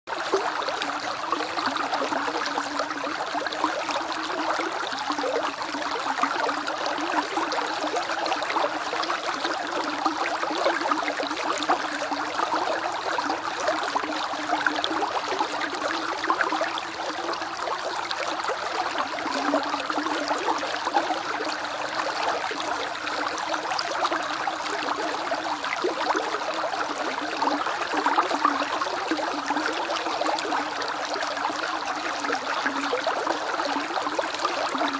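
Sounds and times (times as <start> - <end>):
creek babbling over stones: 0.1 - 34.9.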